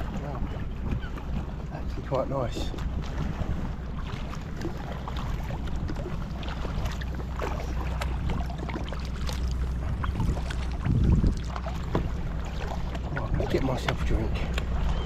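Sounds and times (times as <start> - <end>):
paddle splashing in water: 0.0 - 15.0
wind on microphone: 9.8 - 15.0.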